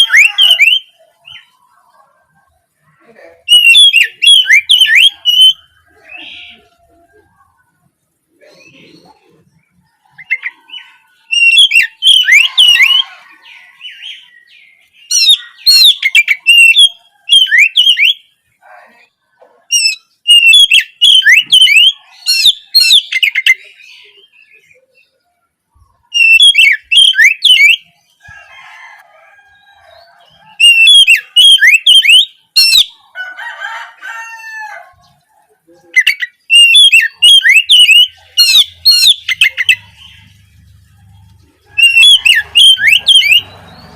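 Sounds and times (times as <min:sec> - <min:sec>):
bird singing whistled phrases: 0:00.0 - 0:01.6, 0:03.5 - 0:06.7, 0:10.2 - 0:13.1, 0:13.9 - 0:18.3, 0:19.7 - 0:24.7, 0:26.1 - 0:27.9, 0:30.6 - 0:33.0, 0:35.9 - 0:40.0, 0:41.8 - 0:43.5
fainter lower bird calls: 0:00.0 - 0:43.9.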